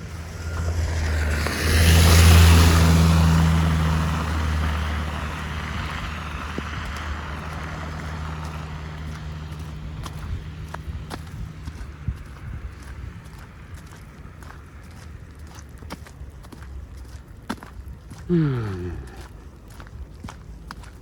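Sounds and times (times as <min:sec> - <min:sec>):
vehicle driving past: 0:00.0 - 0:16.0.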